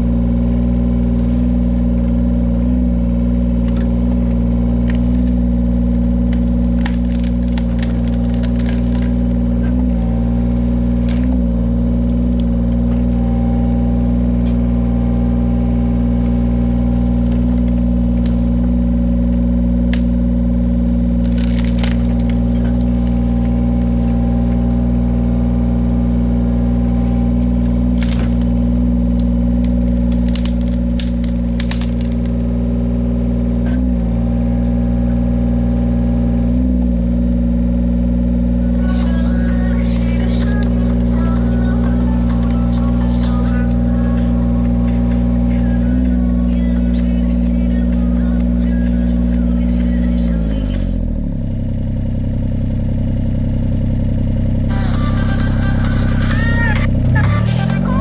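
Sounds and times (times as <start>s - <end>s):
wood splitting cracks: 0.0s - 36.6s, 38.4s - 49.5s
machine engine running: 0.0s - 58.0s.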